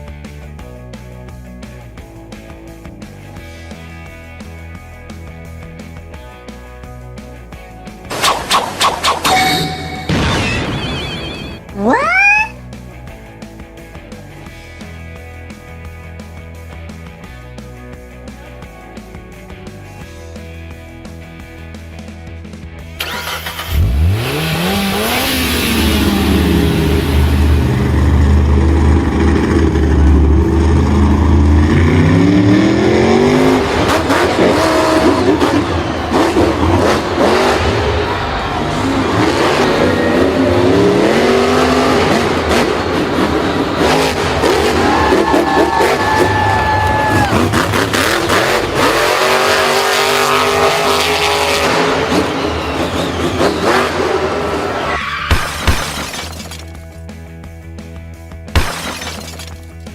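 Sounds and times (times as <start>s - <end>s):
vehicle engine revving: 23.0s - 54.9s.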